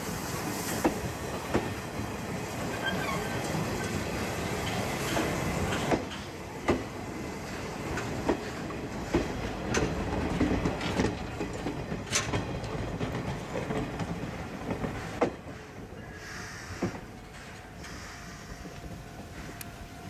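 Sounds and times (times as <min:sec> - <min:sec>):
steam train rumble: 0:00.0 - 0:20.0
wheel clacks over rail joints: 0:07.9 - 0:15.7.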